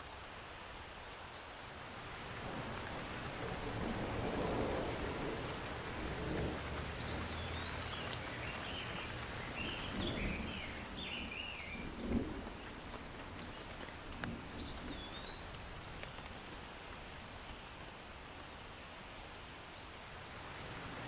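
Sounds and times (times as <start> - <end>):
steady rain: 0.0 - 21.0
bird chirping: 6.9 - 12.0, 14.6 - 16.2.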